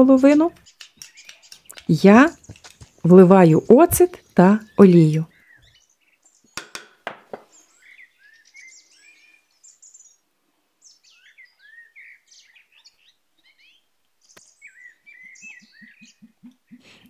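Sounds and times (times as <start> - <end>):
songbirds chirping faintly: 0.0 - 17.0.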